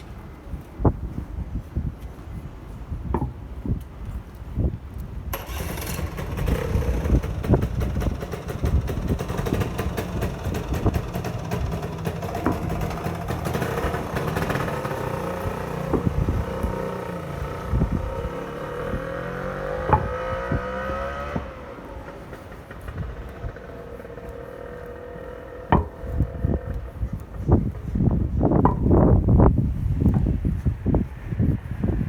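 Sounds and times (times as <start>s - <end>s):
quiet traffic: 0.0s - 32.0s
vehicle passing with motor whine: 5.3s - 28.0s.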